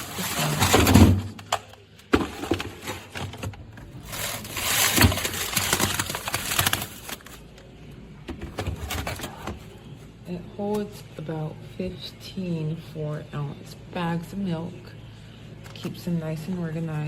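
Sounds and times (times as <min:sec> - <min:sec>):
plastic scraping and rustling: 0:00.0 - 0:07.4.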